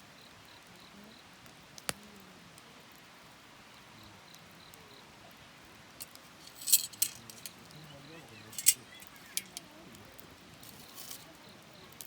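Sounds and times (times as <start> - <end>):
wood fire crackling: 1.4 - 12.0
fire popping: 5.9 - 12.0.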